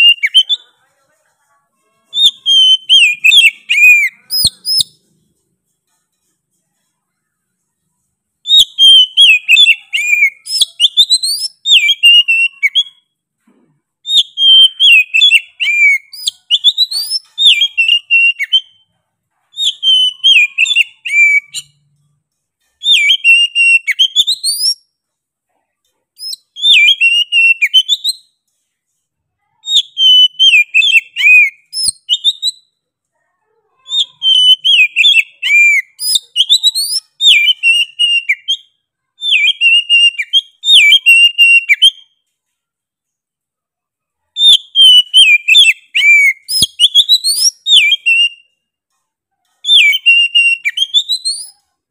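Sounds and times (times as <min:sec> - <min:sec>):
bird song whistled phrases: 0:00.0 - 0:00.7, 0:02.1 - 0:05.0, 0:08.4 - 0:13.2, 0:14.0 - 0:18.9, 0:19.5 - 0:21.8, 0:22.8 - 0:24.9, 0:26.2 - 0:28.4, 0:29.6 - 0:32.8, 0:33.8 - 0:42.2, 0:44.4 - 0:48.6, 0:49.6 - 0:51.8.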